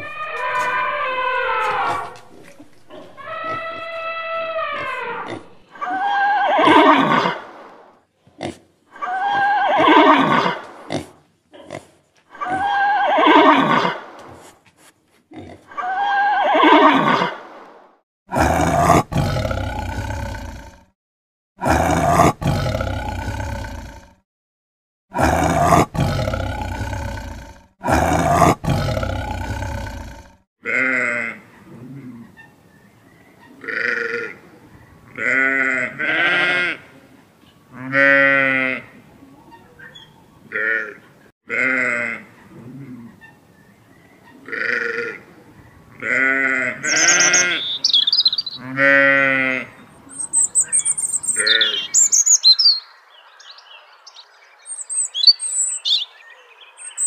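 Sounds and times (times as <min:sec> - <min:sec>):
leopard roars: 0:00.0 - 0:07.4, 0:18.3 - 0:20.9, 0:21.6 - 0:24.2, 0:25.2 - 0:30.4
zebra calls: 0:00.0 - 0:07.4, 0:46.0 - 0:52.8.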